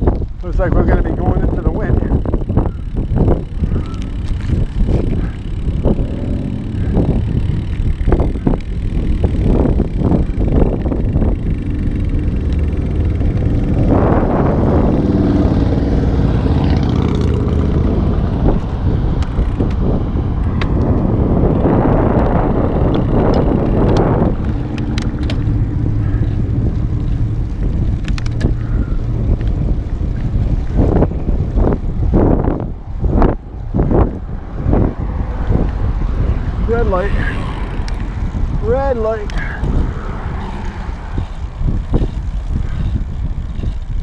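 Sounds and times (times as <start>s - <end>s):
wind buffeting microphone: 0.0s - 44.0s
sharp ticks: 2.1s - 13.7s, 22.1s - 30.3s, 37.4s - 39.7s.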